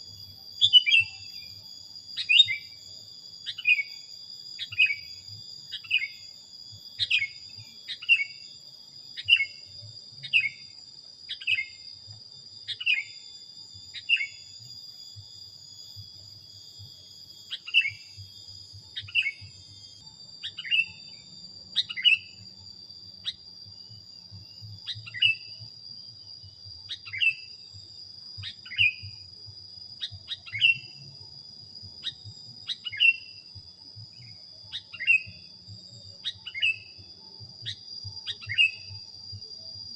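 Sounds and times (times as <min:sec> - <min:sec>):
high-pitched whine: 0:00.0 - 0:39.9
bird chirping: 0:02.2 - 0:02.8, 0:19.0 - 0:22.4.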